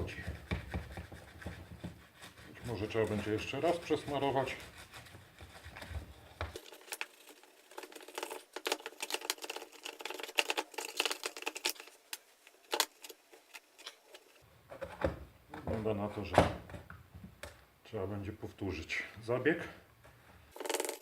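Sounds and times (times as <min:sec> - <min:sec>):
brush scrubbing plastic: 0:00.0 - 0:14.4.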